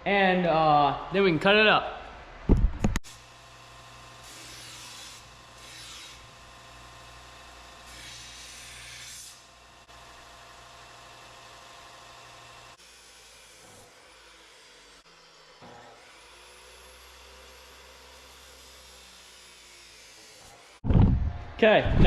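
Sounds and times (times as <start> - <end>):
steady tool hum: 2.6 - 22.0
abrasive tool scraping steel: 4.2 - 6.4.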